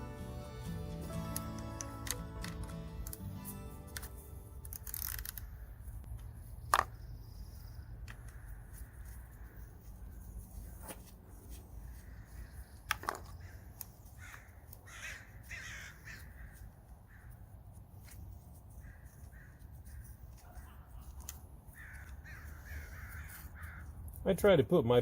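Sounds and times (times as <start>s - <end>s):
crows cawing: 8.1s - 9.8s, 11.7s - 17.6s, 18.7s - 24.1s.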